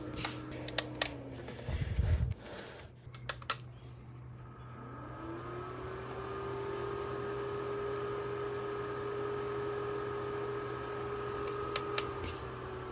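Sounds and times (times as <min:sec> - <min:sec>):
small electric fan motor hum: 0:03.6 - 0:12.9.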